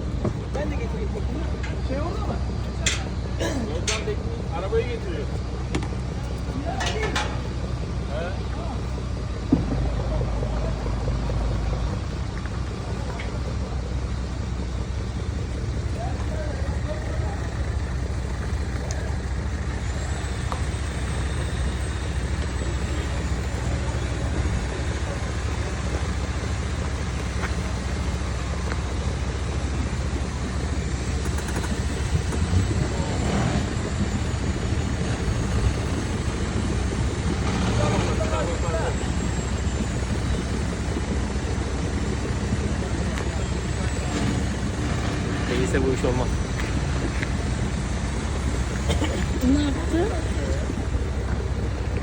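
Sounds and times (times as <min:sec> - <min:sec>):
car engine low rumble: 0:00.0 - 0:52.0.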